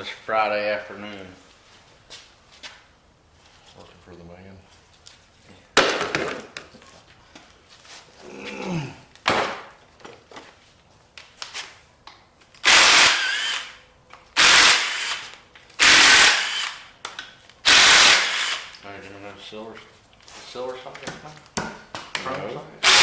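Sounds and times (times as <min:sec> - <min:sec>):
impact wrench bursts: 0:12.6 - 0:13.8, 0:14.4 - 0:17.0, 0:17.6 - 0:18.8, 0:22.8 - 0:23.0.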